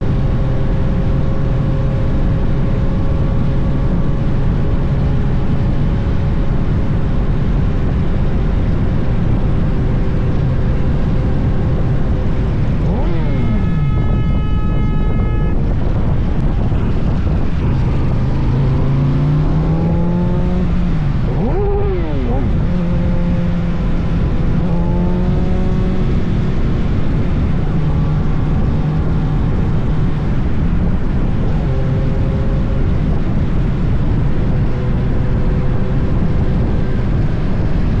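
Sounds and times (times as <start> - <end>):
motorcycle engine: 0.0 - 38.0
wind rush: 0.0 - 38.0
vehicle horn: 12.8 - 16.4.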